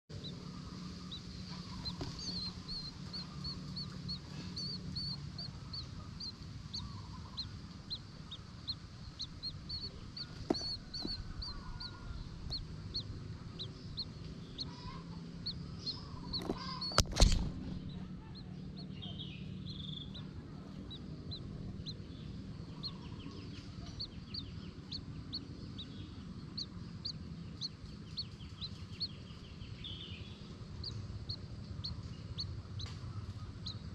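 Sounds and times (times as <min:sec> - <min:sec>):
small bird calling: 0:00.1 - 0:33.9
steady low hum: 0:00.1 - 0:33.9.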